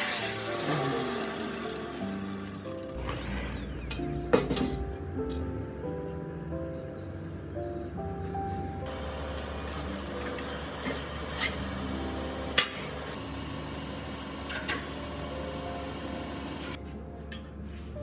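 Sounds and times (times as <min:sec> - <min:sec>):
background music with held notes: 0:00.0 - 0:13.2.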